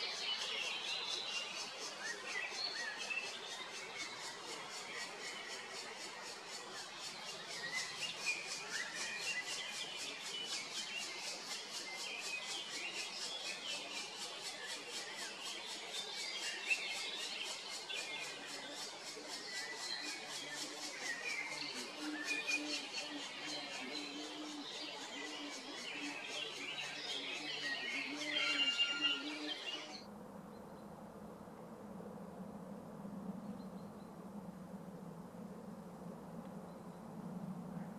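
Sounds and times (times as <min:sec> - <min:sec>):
birds chirping and twittering: 0:00.0 - 0:31.1, 0:32.9 - 0:37.9
insects calling: 0:00.0 - 0:31.2
birds chirping: 0:15.4 - 0:30.9.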